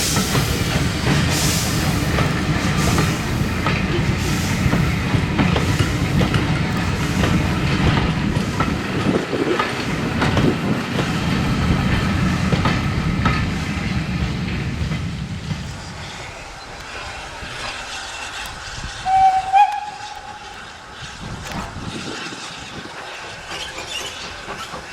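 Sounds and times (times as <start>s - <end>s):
train wheels clattering: 0.0s - 24.9s
steam locomotive whistle: 18.8s - 20.8s.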